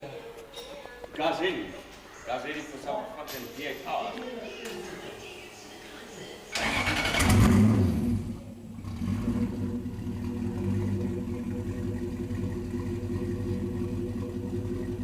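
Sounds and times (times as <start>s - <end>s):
turbocharged engine revving and idling: 6.6s - 15.0s.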